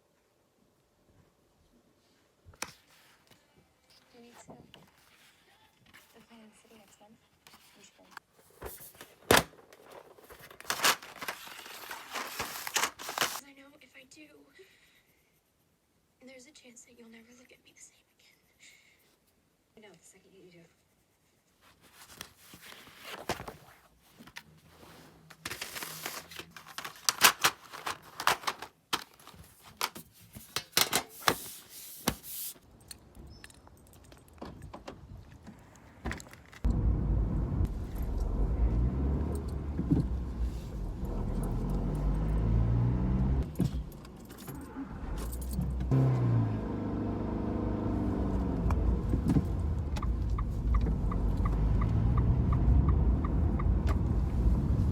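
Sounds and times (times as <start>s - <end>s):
car engine revving: 36.7s - 54.9s
keys jangling: 43.6s - 45.8s.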